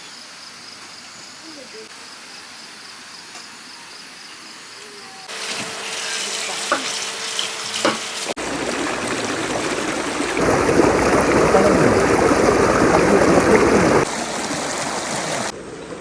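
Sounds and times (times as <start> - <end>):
faint insects: 0.0 - 8.3
running water: 5.3 - 16.0.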